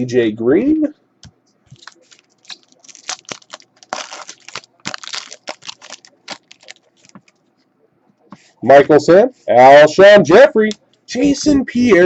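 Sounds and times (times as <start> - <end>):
trading cards crinkling and rustling: 1.7 - 7.5.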